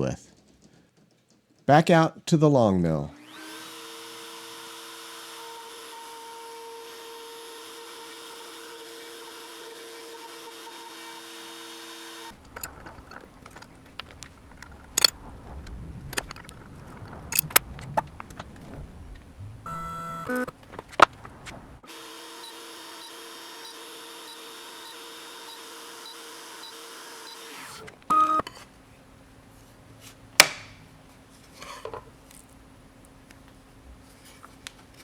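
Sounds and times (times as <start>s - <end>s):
sharp clicks and knocks: 0.3s - 1.8s, 12.3s - 21.8s, 30.4s - 30.8s
router spindle humming: 3.1s - 15.0s, 19.3s - 28.4s.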